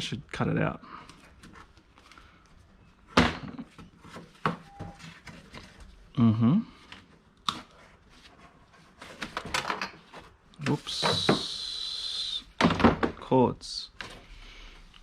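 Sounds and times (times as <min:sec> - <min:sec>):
person humming: 0:06.2 - 0:06.8, 0:10.8 - 0:12.5.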